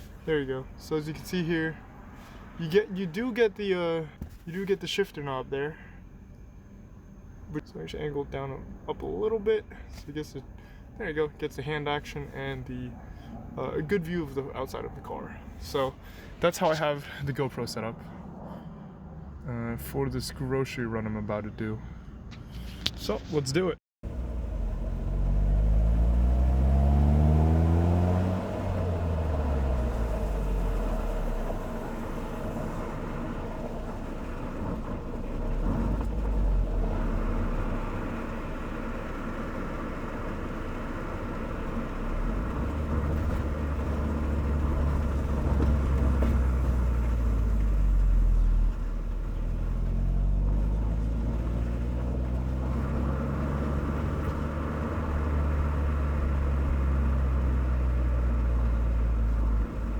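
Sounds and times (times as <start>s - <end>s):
car engine accelerating: 24.0s - 59.9s.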